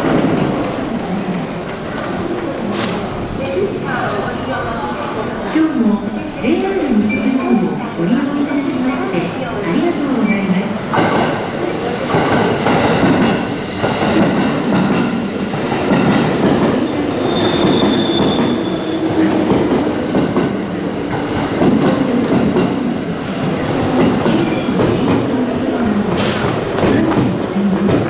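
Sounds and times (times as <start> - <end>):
train wheels clattering on rails: 10.2 - 28.0
high train squeal: 16.8 - 19.4.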